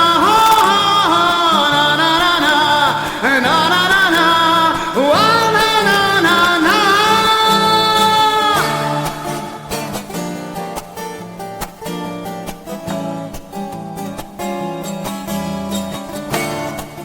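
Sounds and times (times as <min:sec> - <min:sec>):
person singing wordlessly: 0:00.0 - 0:10.3.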